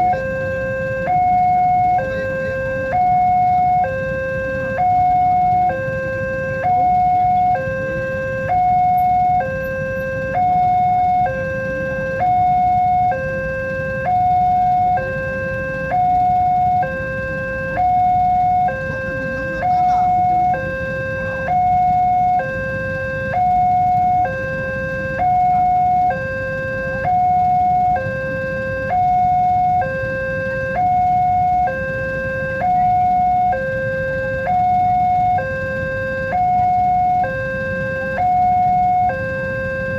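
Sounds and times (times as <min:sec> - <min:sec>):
two-tone crossing alarm: 0:00.0 - 0:39.9.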